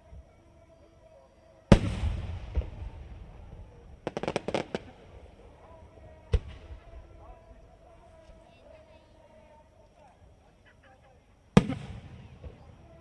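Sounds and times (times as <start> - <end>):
firework boom with rolling echo: 1.7 - 8.2
firework crackling pops: 1.7 - 8.4, 11.6 - 13.0.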